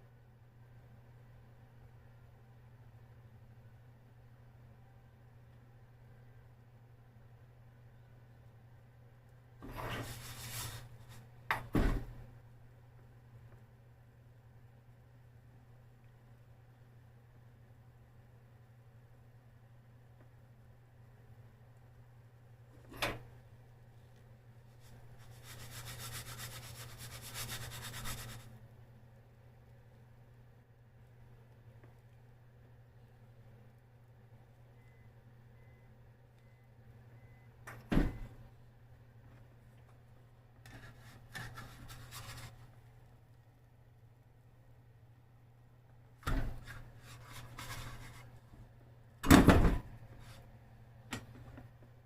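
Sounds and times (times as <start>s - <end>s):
steady low hum: 0.0s - 52.0s
rapid rubbing strokes: 9.9s - 11.2s, 24.8s - 28.5s, 40.8s - 42.6s.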